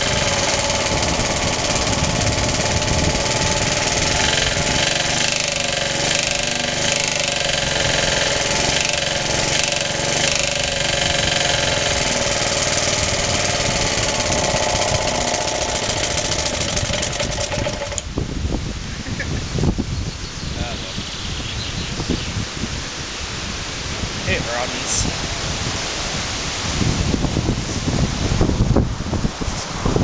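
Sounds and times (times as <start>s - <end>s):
engine running with loud knock: 0.0s - 18.2s.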